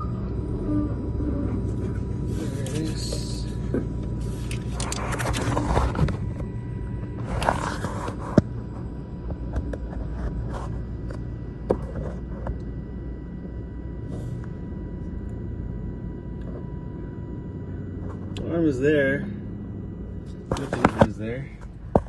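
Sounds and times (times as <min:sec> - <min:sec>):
diesel truck engine idling: 0:00.0 - 0:08.0
faint steady hum: 0:00.0 - 0:22.0.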